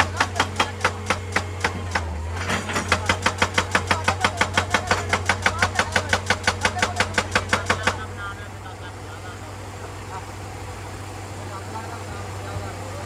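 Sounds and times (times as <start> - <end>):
excavator engine humming: 0.0 - 13.0
hydraulic breaker hammering rock: 0.0 - 13.0.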